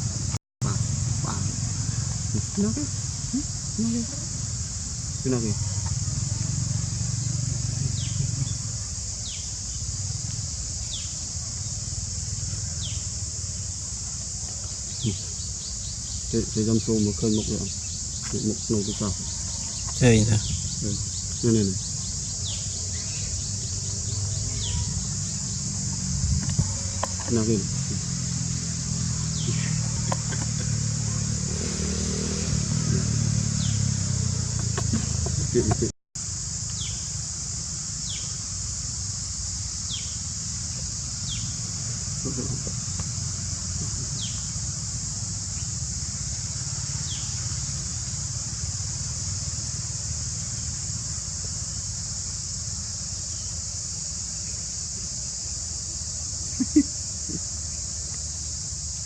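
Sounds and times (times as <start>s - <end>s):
engine running at low speed: 0.0s - 10.6s, 14.9s - 38.1s, 39.9s - 53.1s
high-pitched insect chorus: 0.0s - 59.0s.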